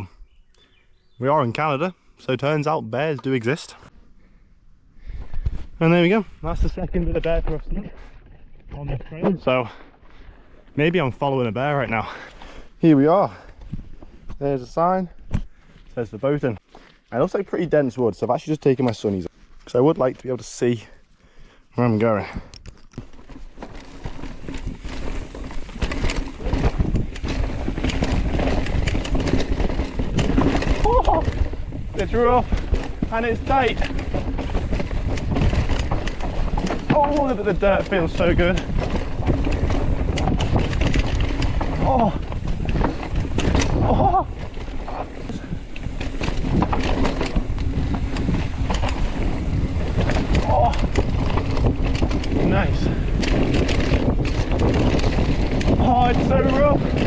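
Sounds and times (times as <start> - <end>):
bike tyres rolling over dirt: 5.0 - 57.0
bike frame and chain rattling: 22.0 - 57.0.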